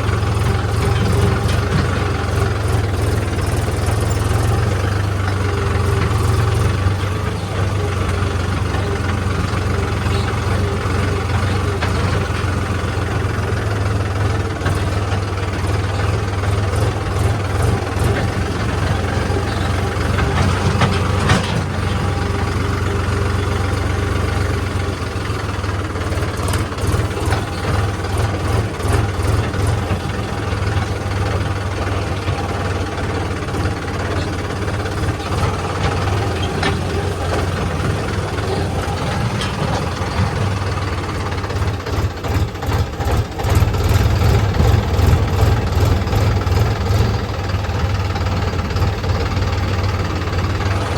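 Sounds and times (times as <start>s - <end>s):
diesel engine humming: 0.0s - 50.9s
knocks and clatter: 14.3s - 22.9s, 26.0s - 49.9s.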